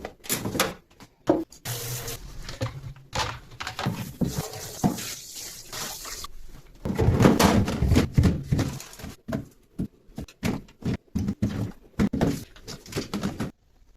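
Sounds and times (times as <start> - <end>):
items knocking and clicking: 2.4 - 5.0, 6.8 - 13.7
rubbing and scrubbing: 3.8 - 6.3.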